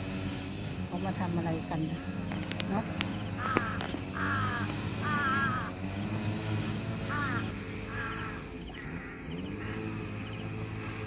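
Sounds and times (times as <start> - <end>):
low engine hum: 0.0 - 11.0
bird calling harshly: 1.9 - 5.9, 7.0 - 11.0.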